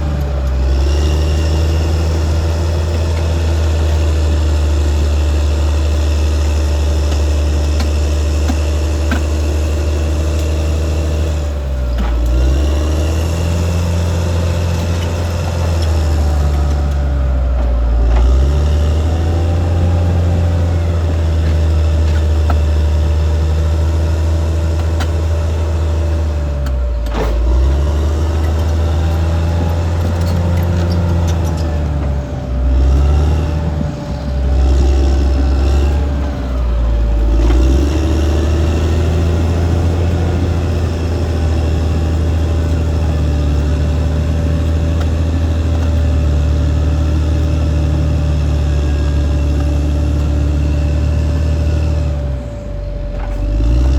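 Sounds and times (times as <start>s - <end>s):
bulldozer diesel engine: 0.0s - 53.9s.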